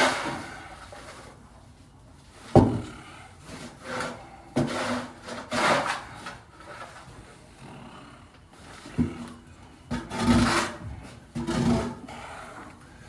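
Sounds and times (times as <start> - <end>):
scraping on wood: 2.4 - 7.4, 8.6 - 12.8.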